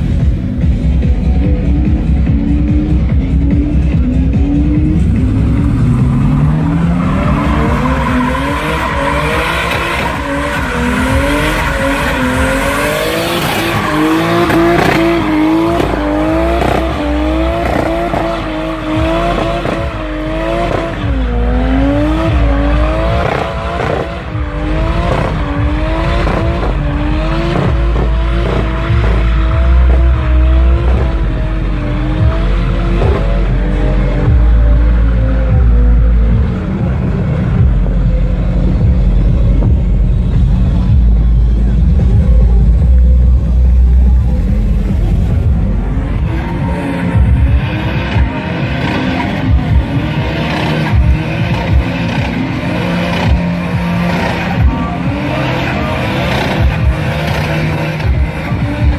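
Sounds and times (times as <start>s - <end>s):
car engine revving hard: 2.2s - 41.8s, 43.3s - 58.9s.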